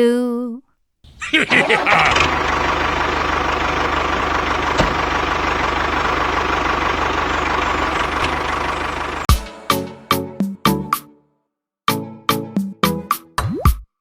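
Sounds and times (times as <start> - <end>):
small engine idling: 1.1 - 9.3.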